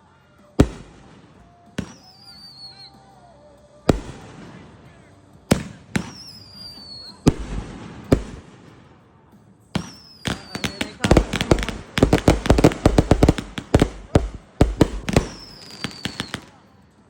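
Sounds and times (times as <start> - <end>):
crackling firework volley: 0.0 - 17.0
fireworks bangs: 0.6 - 2.7, 3.9 - 9.0, 9.8 - 16.7.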